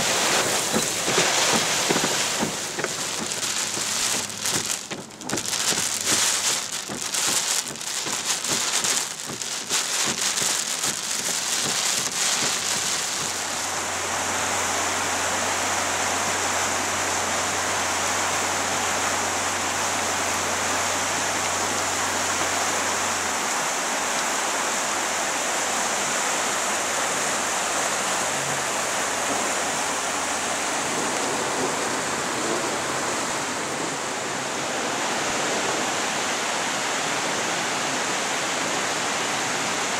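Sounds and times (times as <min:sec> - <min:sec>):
sharp raindrop hits: 0:00.0 - 0:14.0
heavy rain: 0:00.0 - 0:39.9
rushing flood water: 0:00.0 - 0:39.9.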